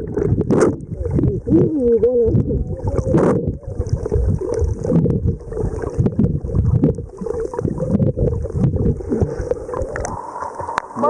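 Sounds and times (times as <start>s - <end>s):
underwater sloshing of sea water: 0.0s - 11.0s.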